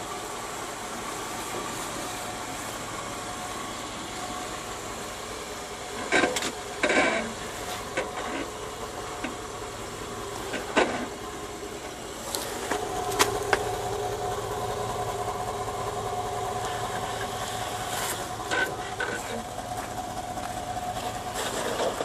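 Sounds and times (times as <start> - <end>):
engine running at low speed: 0.0 - 22.0
sharp clicks and knocks: 6.0 - 7.3.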